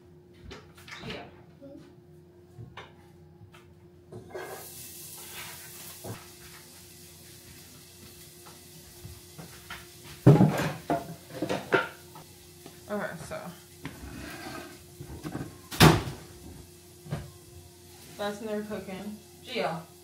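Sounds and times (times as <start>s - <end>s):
onions sizzling in oil: 4.4s - 20.0s
kitchenware clunk and clatter: 10.2s - 12.0s.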